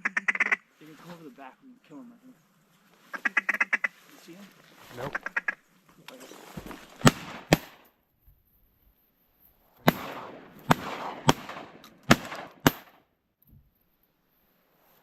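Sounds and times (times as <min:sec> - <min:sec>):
shotgun shots echoing: 0:07.0 - 0:07.8, 0:09.8 - 0:13.0.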